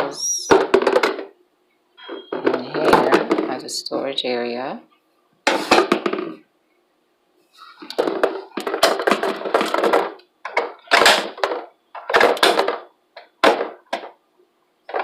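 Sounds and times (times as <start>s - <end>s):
plastic parts rustling and clattering: 0.5s - 1.3s, 5.5s - 6.4s, 7.6s - 14.2s.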